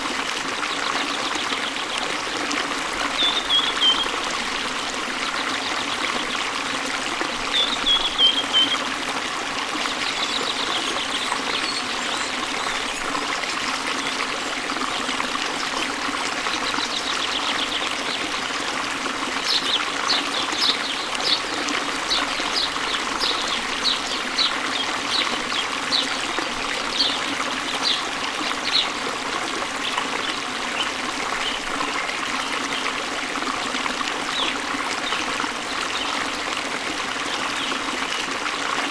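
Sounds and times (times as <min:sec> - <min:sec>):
stream babbling over rocks: 0:00.0 - 0:38.9
birds singing: 0:03.0 - 0:04.2, 0:07.3 - 0:08.9, 0:09.9 - 0:13.1, 0:19.5 - 0:29.0.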